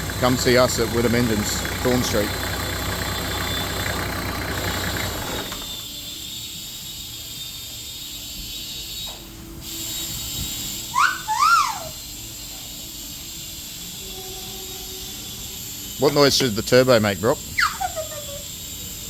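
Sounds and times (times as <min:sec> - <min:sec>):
diesel engine running: 0:00.0 - 0:05.9
rising and falling whistles: 0:03.0 - 0:04.1.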